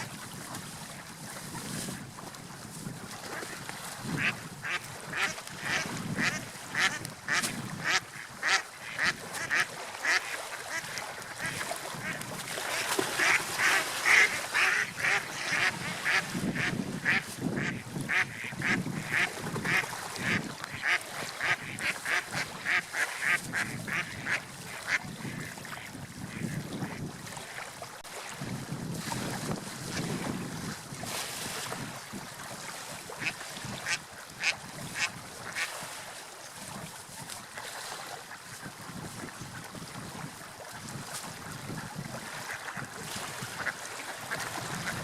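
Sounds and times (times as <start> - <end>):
sea and wind: 0.0 - 45.0.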